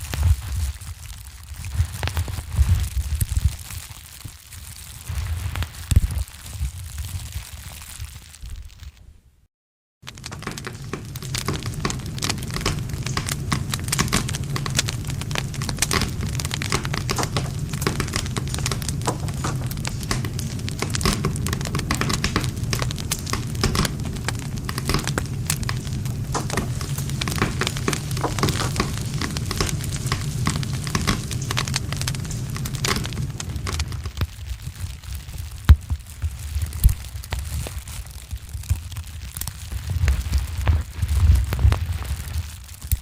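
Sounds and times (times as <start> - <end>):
campfire crackling and popping: 0.0 - 9.0, 10.0 - 43.0
low rumble: 10.1 - 34.2.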